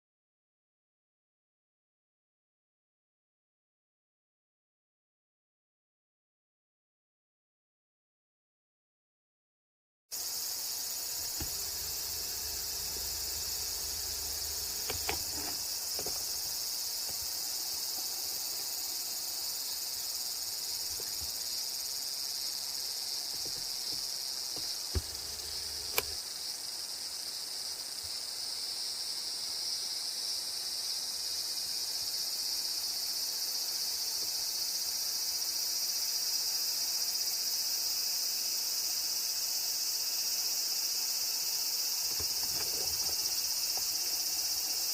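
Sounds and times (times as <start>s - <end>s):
insects chirring: 10.2s - 44.9s
sharp clicks: 11.2s - 16.5s, 24.6s - 26.2s.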